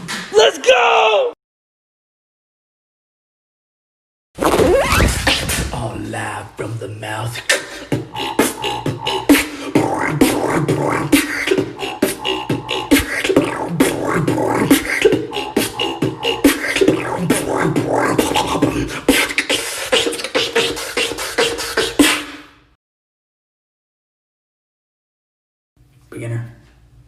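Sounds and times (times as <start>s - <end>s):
person beatboxing: 7.0s - 22.5s.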